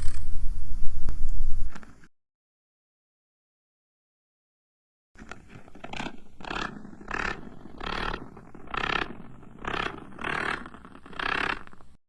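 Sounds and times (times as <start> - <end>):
animal rasping growls: 5.2 - 12.0.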